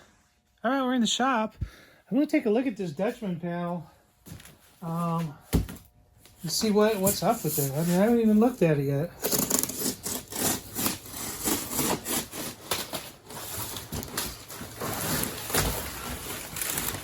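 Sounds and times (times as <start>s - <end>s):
packaging rustling: 9.2s - 17.0s.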